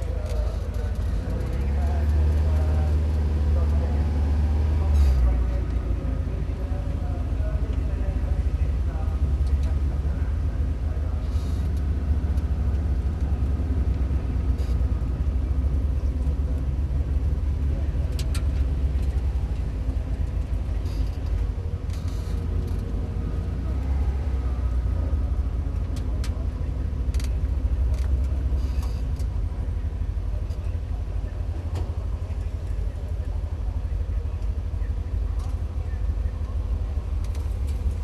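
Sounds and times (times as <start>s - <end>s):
car engine running at low revs: 0.0s - 38.0s
sharp clicks and ticks: 18.1s - 22.9s, 27.0s - 29.4s, 37.2s - 38.0s.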